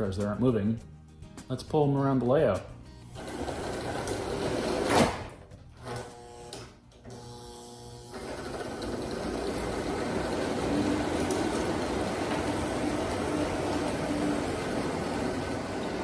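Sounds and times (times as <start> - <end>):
model train motor whir and rumble: 6.0 - 16.0.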